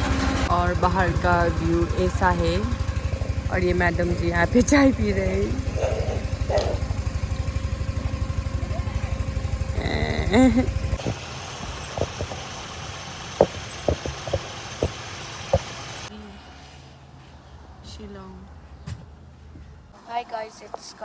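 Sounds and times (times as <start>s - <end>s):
vehicle engine idling: 0.0s - 16.4s
sharp knocks: 11.0s - 12.6s, 13.4s - 15.8s.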